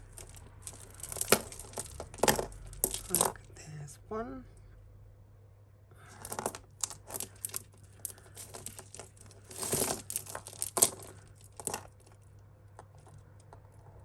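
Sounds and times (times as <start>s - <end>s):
metal chains and beads clinking: 0.0s - 3.5s, 6.1s - 12.2s
rustling: 0.0s - 3.5s, 6.0s - 14.0s
scraping rustle: 6.2s - 12.2s.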